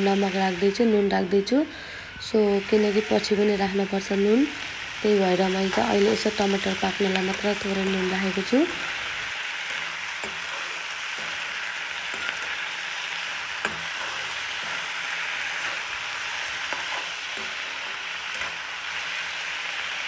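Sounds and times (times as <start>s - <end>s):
food sizzling in oil: 0.0s - 20.0s
metal spatula stirring: 8.7s - 19.4s.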